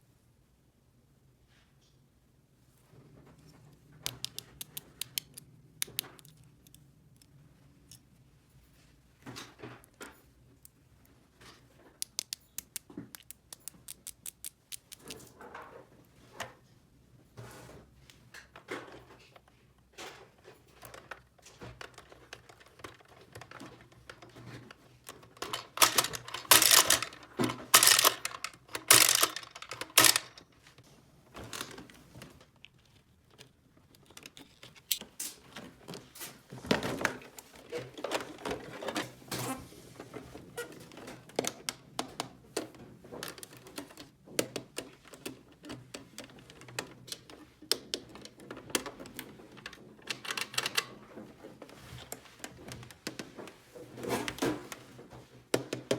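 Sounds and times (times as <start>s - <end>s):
plastic toy pieces clattering: 20.8s - 30.5s.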